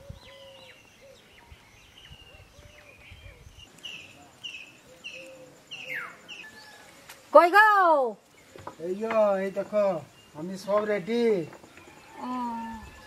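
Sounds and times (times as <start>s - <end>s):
lower whistled bird notes: 0.0s - 6.9s
small birds chirping: 0.0s - 13.0s.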